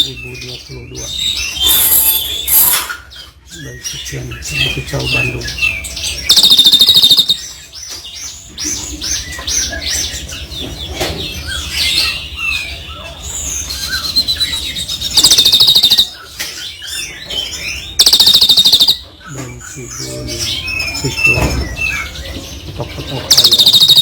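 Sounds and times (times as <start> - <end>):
songbirds singing: 0.0 - 24.0
rapid buzzing trill: 6.3 - 7.4, 15.1 - 16.2, 18.0 - 19.0, 23.3 - 24.0.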